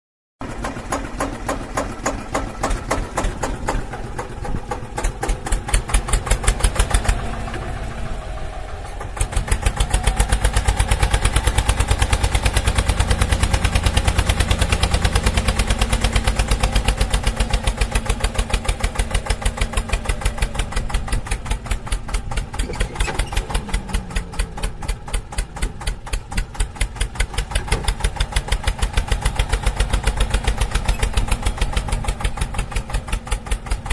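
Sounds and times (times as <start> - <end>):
engine chugging: 0.4 - 33.9.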